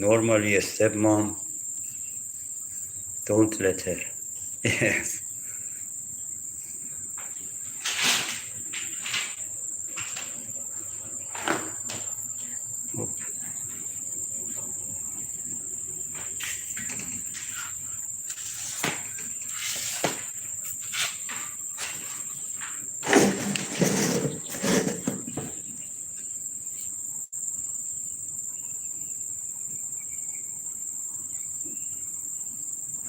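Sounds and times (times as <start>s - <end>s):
insects droning: 0.0s - 33.0s
small knocks and rustles: 6.6s - 15.4s, 16.1s - 27.0s.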